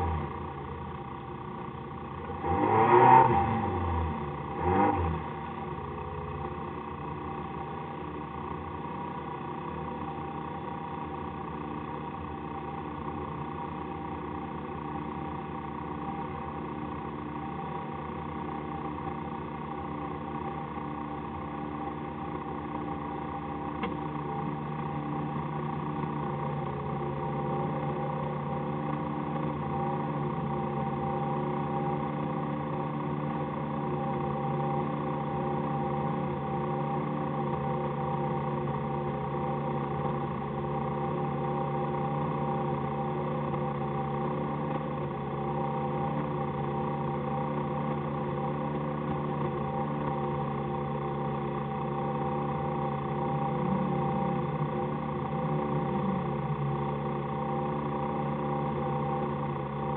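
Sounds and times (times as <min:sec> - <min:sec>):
car engine idling: 0:00.0 - 0:02.7, 0:03.3 - 0:59.9
click: 0:23.8 - 0:24.0.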